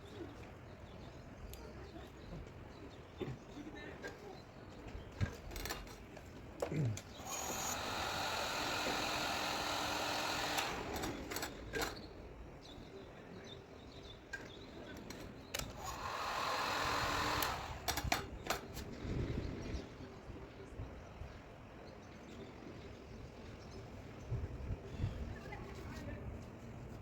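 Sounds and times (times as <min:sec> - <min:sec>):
small power tool whirring: 0:05.6 - 0:05.9, 0:06.7 - 0:12.1, 0:15.5 - 0:18.9.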